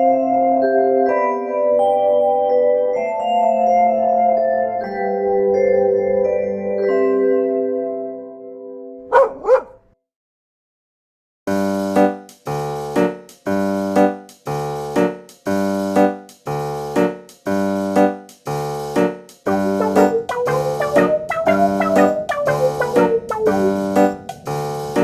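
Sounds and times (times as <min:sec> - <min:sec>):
dog barks: 0:09.1 - 0:09.9
keyboard chords music: 0:11.5 - 0:25.0.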